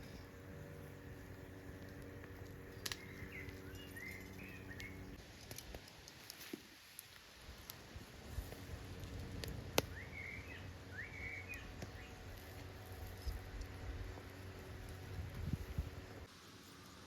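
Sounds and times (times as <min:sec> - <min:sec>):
low steady hum: 0:00.0 - 0:05.3, 0:07.5 - 0:17.0
bird chirping: 0:02.5 - 0:05.2, 0:09.9 - 0:12.2.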